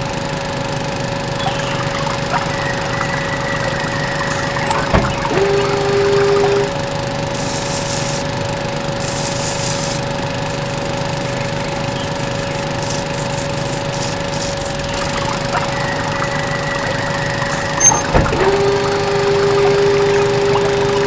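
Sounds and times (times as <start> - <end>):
hiss: 7.4 - 8.2, 9.0 - 14.7.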